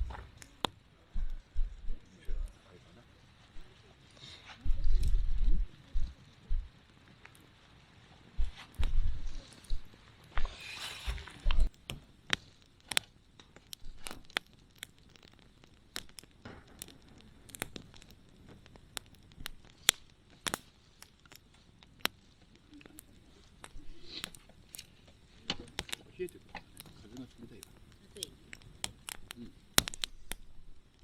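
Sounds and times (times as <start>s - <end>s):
low thumps: 0.0s - 0.4s, 1.1s - 2.5s
campfire crackling: 0.0s - 31.0s
brief rustle: 10.3s - 11.7s.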